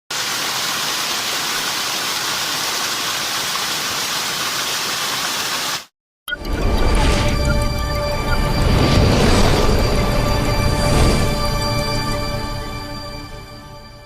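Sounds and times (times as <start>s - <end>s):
music: 6.3s - 14.0s.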